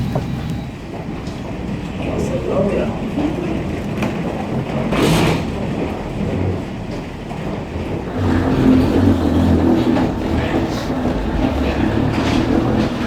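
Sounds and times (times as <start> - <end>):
heavy low hum: 8.1 - 13.0
vehicle rumble: 8.1 - 13.0.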